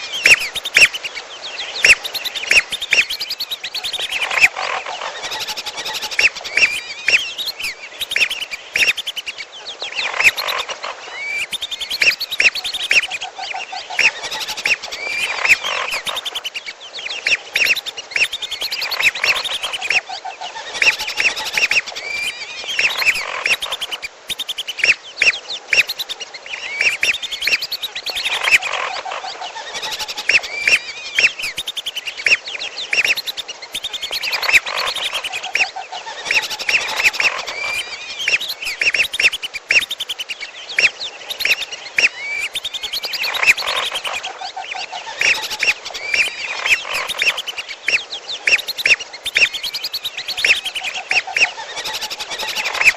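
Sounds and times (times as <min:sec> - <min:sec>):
whistling ducks calling: 0:00.0 - 0:52.9
rapid bird chattering: 0:00.1 - 0:01.2, 0:01.8 - 0:09.3, 0:10.0 - 0:13.2, 0:13.9 - 0:20.0, 0:20.6 - 0:44.3, 0:45.1 - 0:52.9
high whistled bird notes: 0:05.3 - 0:09.2, 0:11.2 - 0:13.1.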